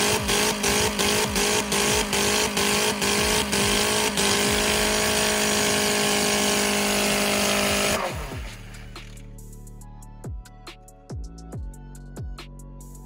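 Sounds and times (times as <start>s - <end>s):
car engine at high revs: 0.0s - 9.2s.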